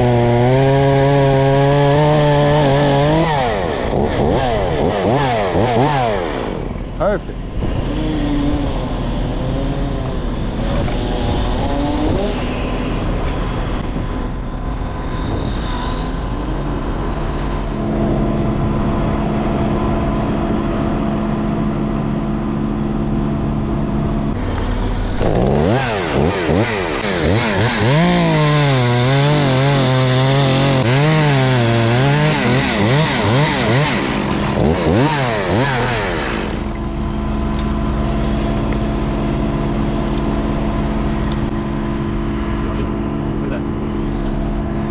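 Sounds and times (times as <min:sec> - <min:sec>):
chainsaw revving and cutting: 0:00.0 - 0:06.9, 0:07.7 - 0:12.8, 0:24.4 - 0:37.0.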